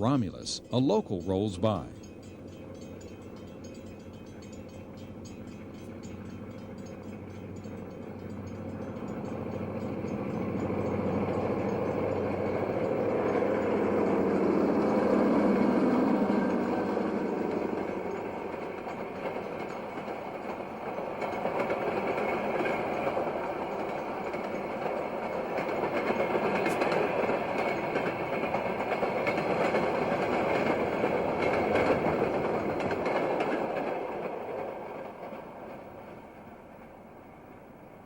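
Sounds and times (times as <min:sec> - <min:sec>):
freight train rolling on rails: 0:00.0 - 0:38.0.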